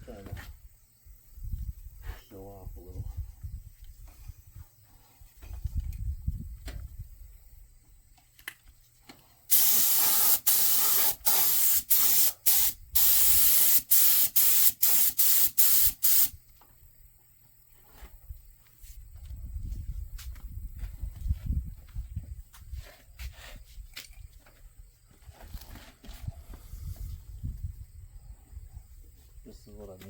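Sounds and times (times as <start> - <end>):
paint spray hissing bursts: 9.5 - 16.4.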